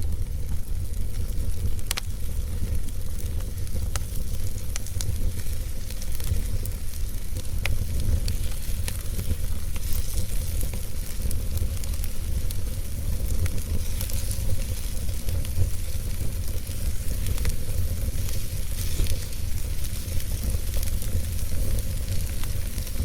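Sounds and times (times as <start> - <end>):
fire crackles and pops: 0.0 - 23.0
fire rumbling and hissing: 0.0 - 23.0.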